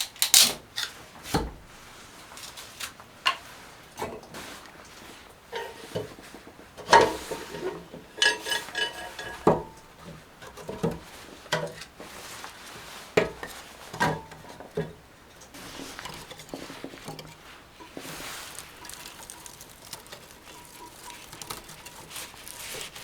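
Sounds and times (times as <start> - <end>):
metal objects clinking: 15.8 - 23.0.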